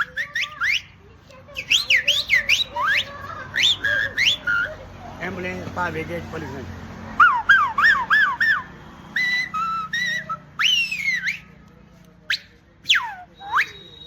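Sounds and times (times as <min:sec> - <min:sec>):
man whistling siren imitations: 0:00.0 - 0:01.0, 0:01.6 - 0:04.7, 0:07.2 - 0:11.5, 0:12.3 - 0:14.0.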